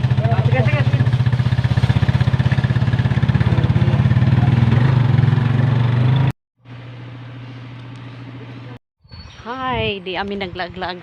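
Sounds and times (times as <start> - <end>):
small vehicle engine pulsing: 0.0 - 8.8.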